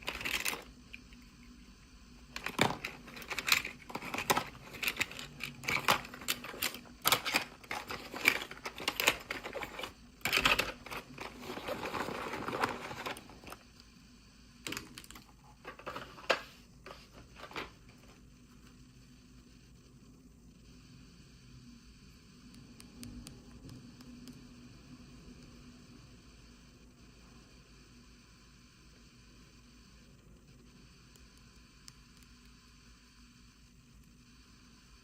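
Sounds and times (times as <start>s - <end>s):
packaging rustling and crinkling: 0.0s - 0.7s, 2.3s - 13.6s
plastic toy pieces clicking: 0.0s - 1.0s, 2.4s - 13.6s.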